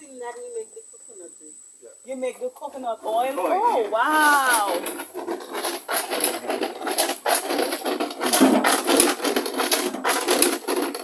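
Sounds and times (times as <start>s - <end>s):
hard objects scraping and clattering: 2.8s - 11.0s.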